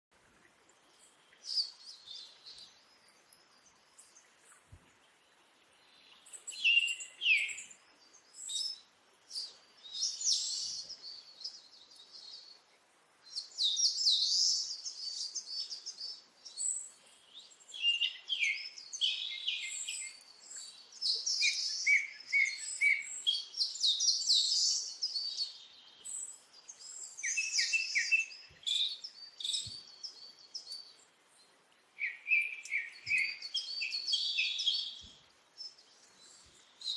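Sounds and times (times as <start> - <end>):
small birds chirping: 0.2 - 36.9.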